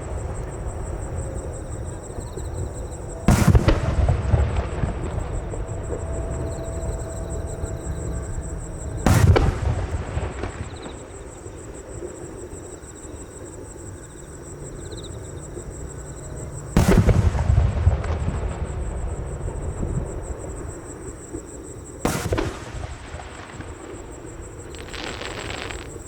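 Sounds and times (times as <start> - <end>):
insects trilling: 0.0 - 17.4, 18.0 - 26.0
firework shells bursting: 24.6 - 26.0.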